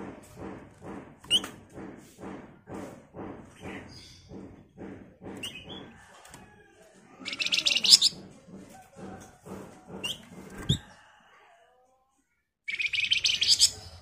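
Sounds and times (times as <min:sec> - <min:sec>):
bird chattering rattle: 0:07.3 - 0:08.4, 0:12.7 - 0:14.0
high bird chirps: 0:12.7 - 0:14.0.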